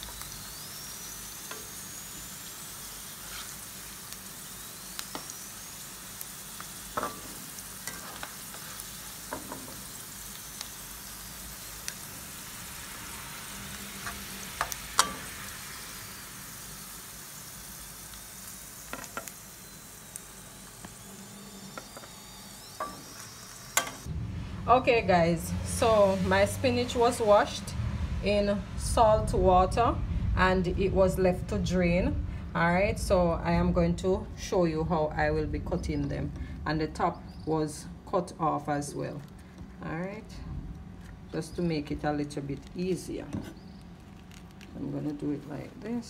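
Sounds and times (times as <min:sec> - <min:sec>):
chicken sizzling in oil: 0:00.0 - 0:24.1.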